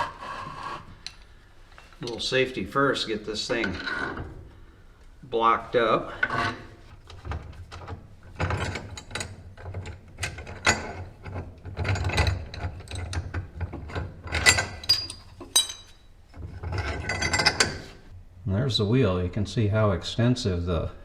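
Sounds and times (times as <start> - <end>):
metal knocks and scrapes: 3.4 - 4.5, 6.1 - 18.1.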